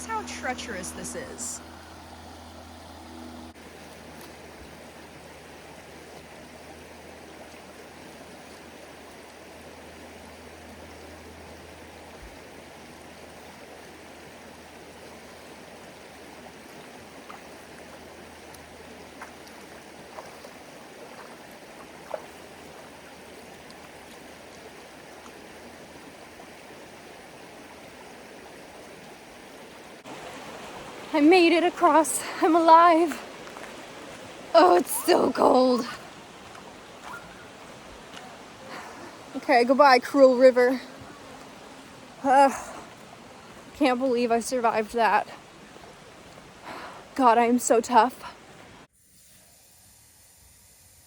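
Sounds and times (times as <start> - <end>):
river rushing over rocks: 24.2 - 43.8.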